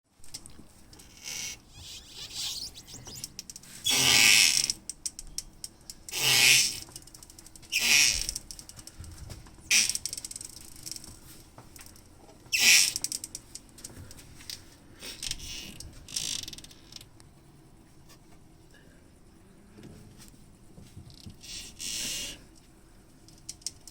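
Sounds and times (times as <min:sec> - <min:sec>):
car squeaking and creaking: 0:01.0 - 0:03.3.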